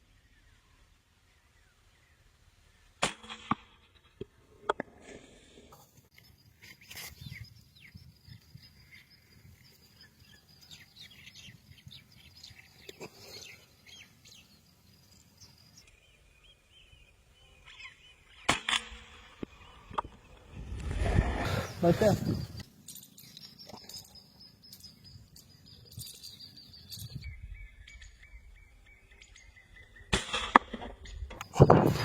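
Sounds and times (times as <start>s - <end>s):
sharp crack: 3.0s - 4.8s, 18.4s - 20.2s, 30.1s - 32.0s.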